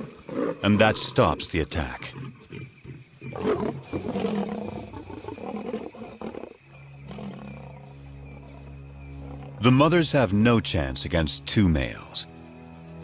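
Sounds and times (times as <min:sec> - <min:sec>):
lions snarling and growling: 0:00.0 - 0:09.8.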